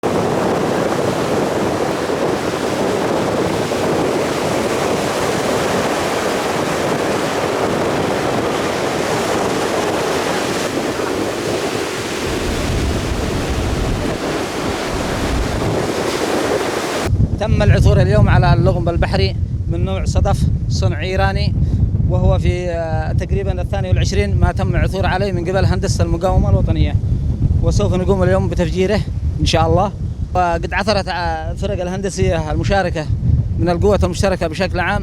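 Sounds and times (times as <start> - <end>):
sea waves: 0.0 - 17.1
wind buffeting microphone: 0.0 - 35.0.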